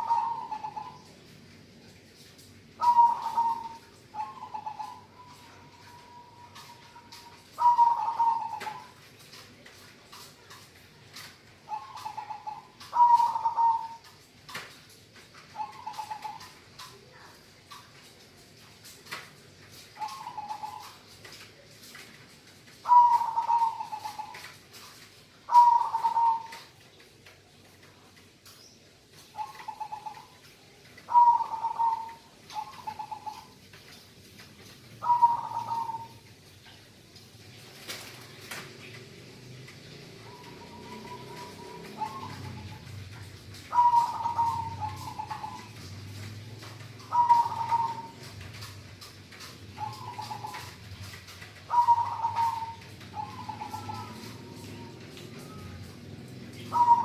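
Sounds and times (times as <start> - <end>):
dove cooing: 0.0 - 1.1, 2.8 - 9.3, 11.6 - 14.2, 15.4 - 17.2, 19.8 - 21.1, 22.8 - 24.6, 25.5 - 26.8, 29.2 - 30.4, 31.0 - 33.6, 35.0 - 36.3, 40.2 - 57.0.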